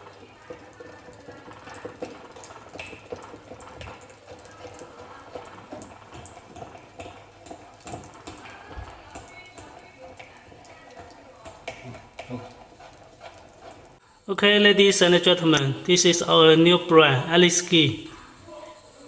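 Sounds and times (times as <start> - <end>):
manual meat grinder clicking and scraping: 0.0 - 14.0.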